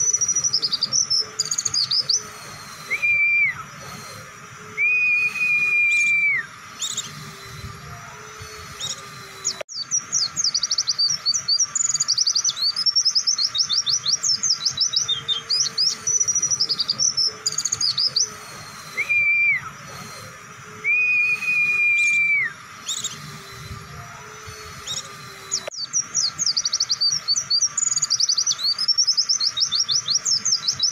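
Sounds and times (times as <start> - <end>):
bird chattering chirps: 0.0 - 4.3, 8.3 - 20.4, 24.2 - 30.9
bird whistled notes: 0.0 - 30.9.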